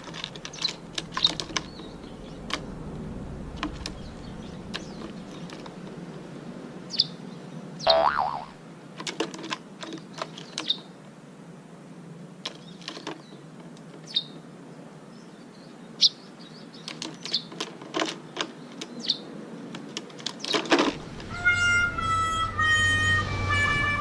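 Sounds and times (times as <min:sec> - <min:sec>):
sharp clicks and knocks: 0:00.0 - 0:02.7
small bird chirping: 0:06.9 - 0:07.2, 0:07.8 - 0:08.5, 0:14.1 - 0:14.4, 0:15.1 - 0:17.5
music with sustained tones: 0:21.3 - 0:24.0.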